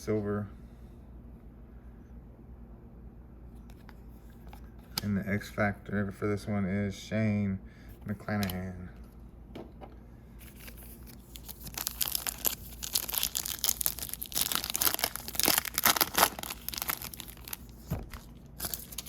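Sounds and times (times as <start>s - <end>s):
foil wrapper tearing and crinkling: 10.5s - 19.0s.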